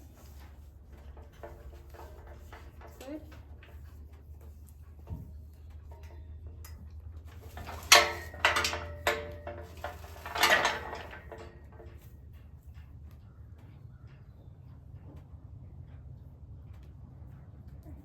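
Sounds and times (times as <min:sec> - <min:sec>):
feed bucket clanking: 0:00.0 - 0:12.2.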